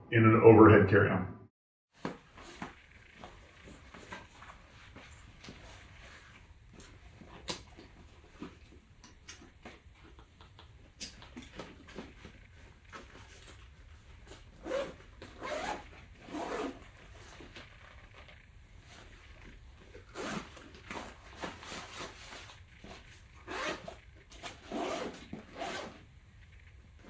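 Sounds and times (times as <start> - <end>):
backpack rustling: 2.0 - 8.8, 11.4 - 26.0
zipper pulls: 14.2 - 18.2, 19.9 - 26.0.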